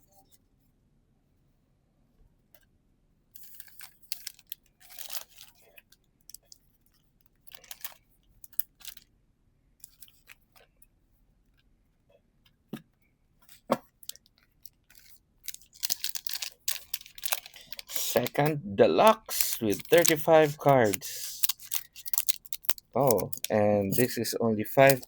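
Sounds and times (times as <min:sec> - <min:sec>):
card and packaging rustling: 0:03.4 - 0:05.7, 0:07.5 - 0:08.0, 0:13.5 - 0:25.0
trading cards being handled: 0:14.9 - 0:25.0.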